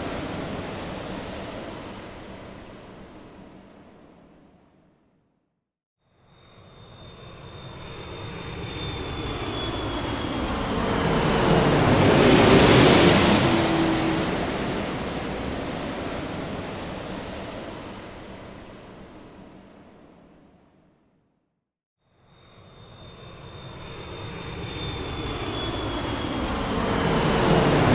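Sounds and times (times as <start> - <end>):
jet airplane flying past: 6.6 - 19.7, 22.5 - 27.9.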